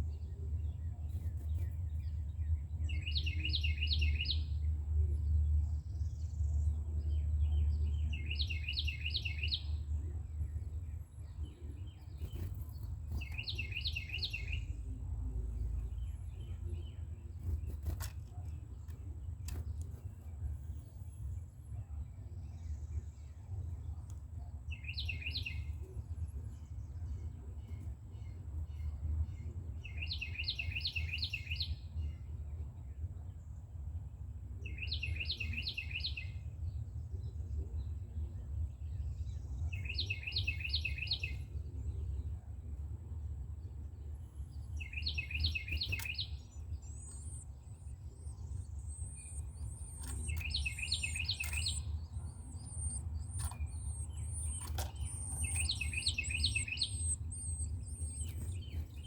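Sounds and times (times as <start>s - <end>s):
wren singing: 0.0s - 4.7s, 5.6s - 32.8s, 33.8s - 59.0s
steady low rumble: 0.0s - 35.4s, 36.4s - 59.0s.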